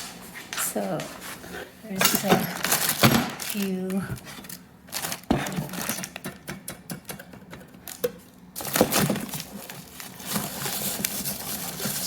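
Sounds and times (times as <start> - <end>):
rustling clatter: 8.6 - 12.0.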